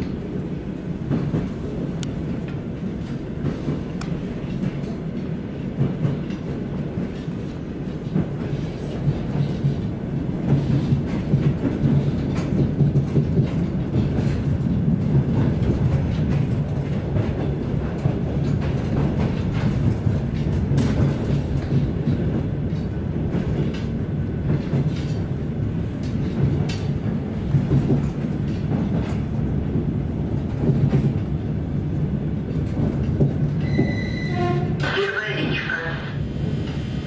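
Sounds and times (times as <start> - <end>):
train interior rumble: 0.0 - 37.0
brief tone: 33.6 - 34.4.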